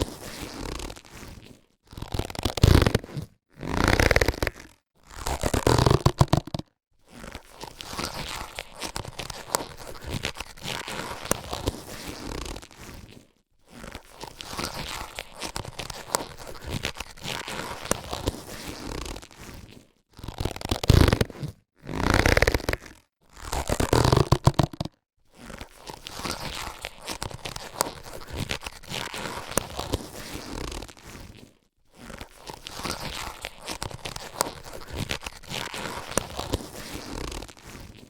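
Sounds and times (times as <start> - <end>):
latex gloves rubbing and clicking: 0.0 - 38.0.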